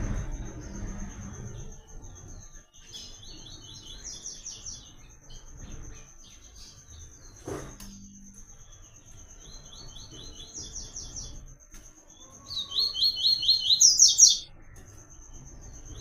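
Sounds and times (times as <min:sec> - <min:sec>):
bird singing high notes: 0:12.6 - 0:14.5.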